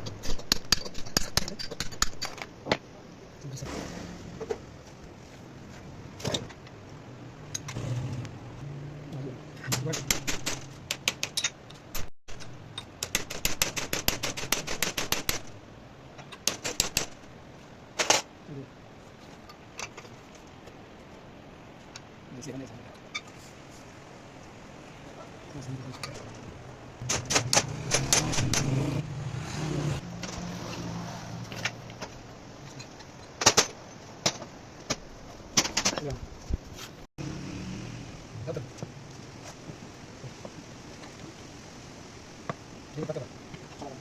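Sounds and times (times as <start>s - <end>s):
sharp clicks and knocks: 0.0s - 2.9s, 9.6s - 15.6s, 16.2s - 17.3s, 25.8s - 29.0s, 31.4s - 36.2s
rapid sharp clicks: 9.8s - 11.4s, 12.3s - 15.6s, 16.4s - 17.3s.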